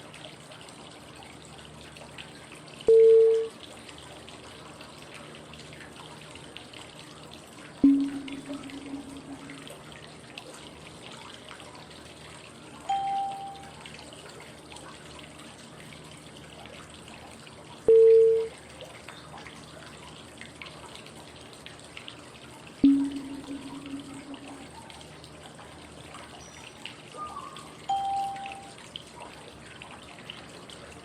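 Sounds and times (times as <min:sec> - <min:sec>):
flowing water white noise: 0:00.0 - 0:31.0
short pitched cue tones: 0:02.9 - 0:03.5, 0:07.8 - 0:09.7, 0:12.9 - 0:13.7, 0:17.9 - 0:18.5, 0:22.8 - 0:24.8, 0:27.9 - 0:28.7.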